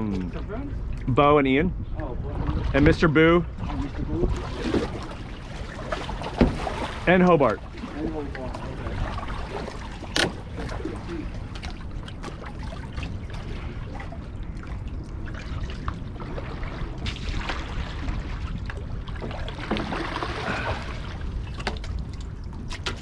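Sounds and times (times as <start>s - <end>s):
water trickling and splashing: 2.0s - 23.0s
river water washing: 19.2s - 21.4s.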